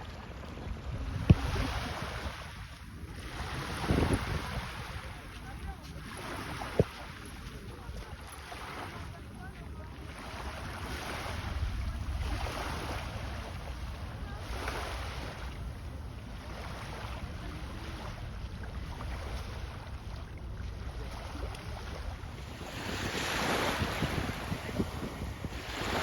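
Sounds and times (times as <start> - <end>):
sea water rushing and splashing: 0.0 - 26.0
wind buffeting microphone: 0.5 - 5.8, 21.5 - 26.0.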